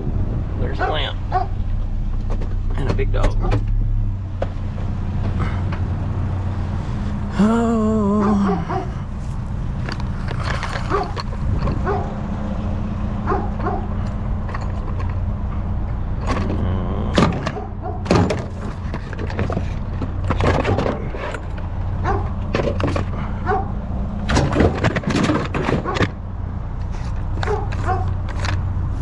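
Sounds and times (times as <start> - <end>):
road noise: 0.0 - 29.0
truck engine running: 0.0 - 29.0
knocks and rattles: 1.6 - 5.9, 9.8 - 12.3, 13.2 - 26.2.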